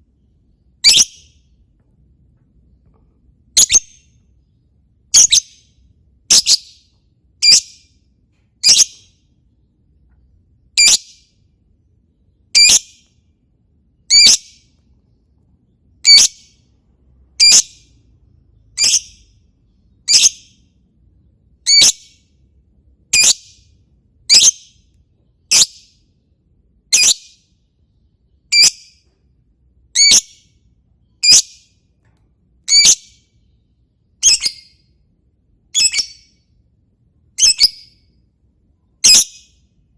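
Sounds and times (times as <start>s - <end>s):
lovebird chirping: 0.8s - 1.4s, 3.6s - 4.2s, 5.1s - 5.7s, 6.3s - 7.9s, 8.6s - 9.2s, 10.8s - 11.2s, 12.5s - 13.1s, 14.1s - 14.7s, 16.0s - 16.6s, 17.4s - 17.9s, 18.6s - 20.6s, 21.7s - 22.2s, 23.1s - 23.7s, 24.3s - 24.8s, 25.5s - 25.9s, 26.9s - 27.5s, 28.5s - 29.0s, 30.0s - 31.7s, 32.7s - 33.3s, 34.2s - 34.8s, 35.7s - 36.4s, 37.4s - 38.0s, 39.0s - 39.6s.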